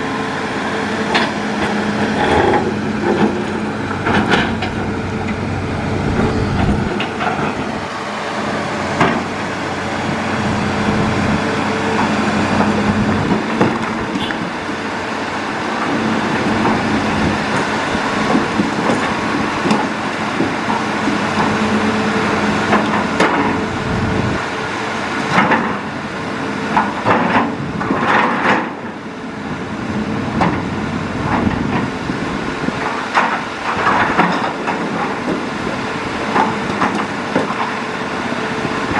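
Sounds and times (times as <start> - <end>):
excavator diesel engine running: 0.0 - 38.9
machine knocks and clatters: 4.0 - 4.8, 26.7 - 28.8.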